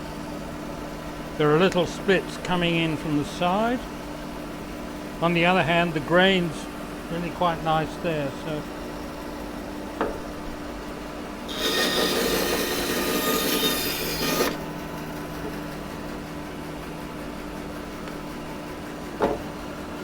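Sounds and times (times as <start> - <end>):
machine hum: 0.0 - 20.0
saw cutting through wood: 11.5 - 14.6.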